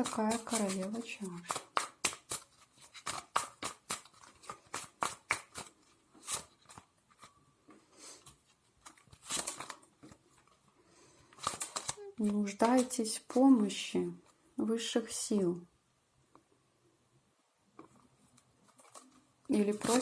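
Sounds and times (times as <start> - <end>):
cards being shuffled: 0.0 - 7.3, 8.2 - 10.2, 11.3 - 13.0, 18.6 - 20.0.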